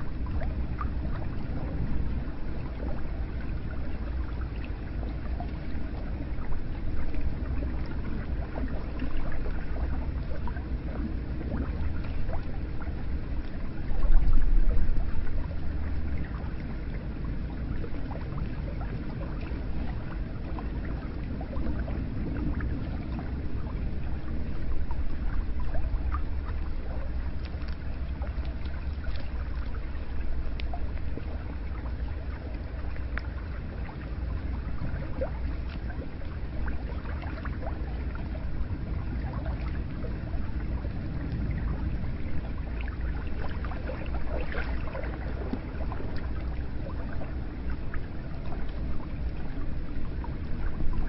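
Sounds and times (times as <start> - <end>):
low rumble: 0.0 - 51.0
water dripping and trickling: 0.0 - 51.0
water running and splashing: 23.7 - 51.0.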